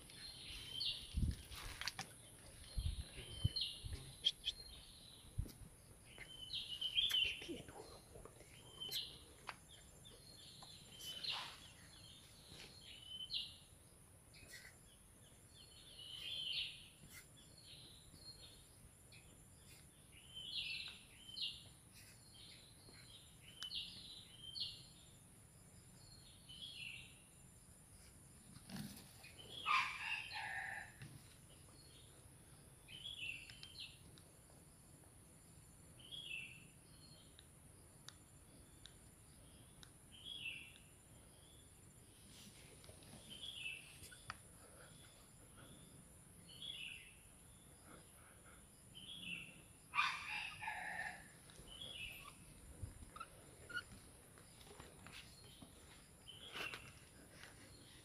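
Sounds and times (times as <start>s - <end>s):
birds chirping: 0.0s - 25.2s, 38.1s - 58.0s.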